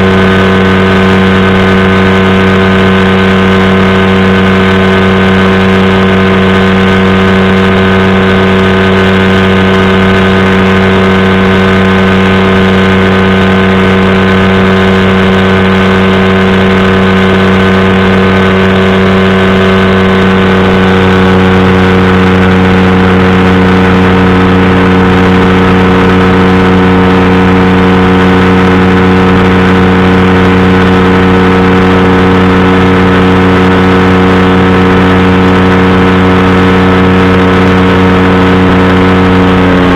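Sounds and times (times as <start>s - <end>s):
engine and propeller running: 0.0s - 39.9s.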